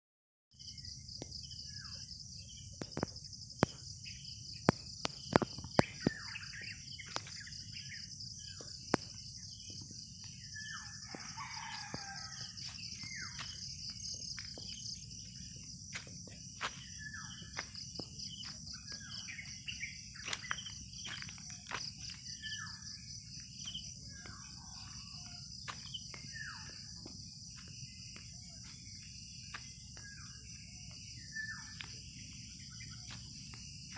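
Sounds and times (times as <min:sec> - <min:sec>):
pulsing insect trill: 0:00.6 - 0:33.9
birds chirping: 0:03.8 - 0:33.9
rooster crowing: 0:10.6 - 0:13.3.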